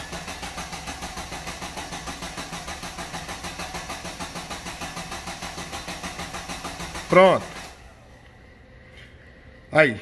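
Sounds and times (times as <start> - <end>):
car engine cranking by starter motor: 0.0 - 8.0.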